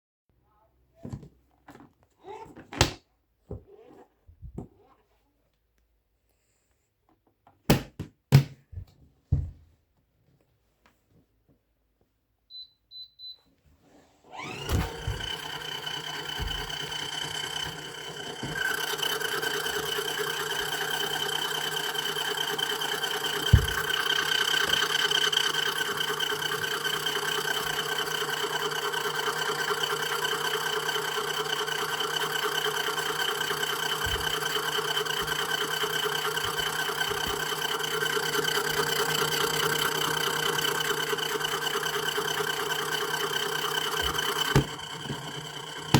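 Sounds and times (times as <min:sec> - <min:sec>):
washing machine spin motor whirring: 0:14.3 - 0:45.9.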